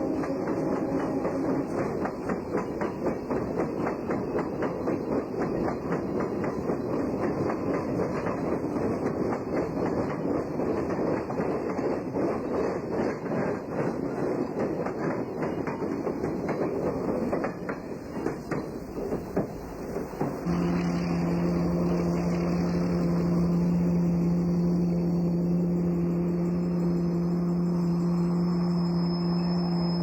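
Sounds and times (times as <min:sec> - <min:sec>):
train clanking on track: 0:00.0 - 0:30.0
low droning tones: 0:20.4 - 0:30.0.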